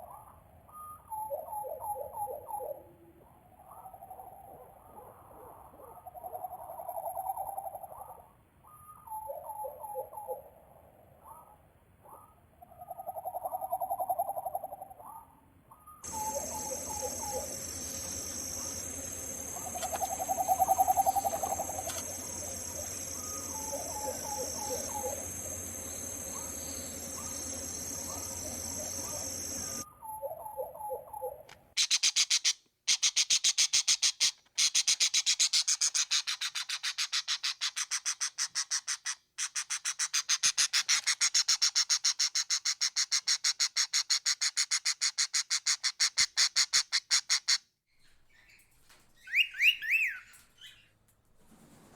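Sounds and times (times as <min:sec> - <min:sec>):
low hooting calls: 0:16.0 - 0:31.4
high insect drone: 0:16.1 - 0:29.8
rapid high bird chattering: 0:16.1 - 0:29.8, 0:31.8 - 0:47.6.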